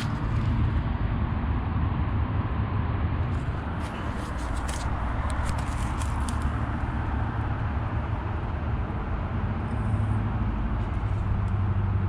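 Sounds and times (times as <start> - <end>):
condenser fan air rush: 0.0 - 12.0.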